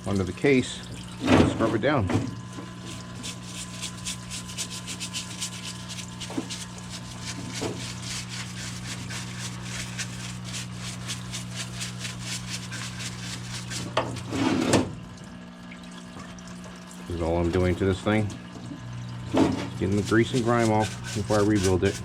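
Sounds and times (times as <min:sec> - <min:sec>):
parts cleaner pump humming: 0:00.0 - 0:22.0
brush scrubbing engine case: 0:02.7 - 0:14.9, 0:19.4 - 0:22.0.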